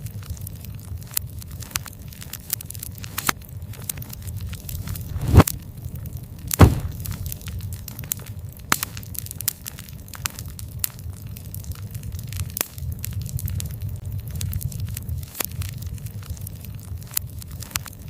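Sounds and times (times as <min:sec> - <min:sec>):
fire crackling: 0:00.1 - 0:18.0
wood fire rumbling: 0:00.1 - 0:18.0
loud fire pops: 0:04.4 - 0:09.2.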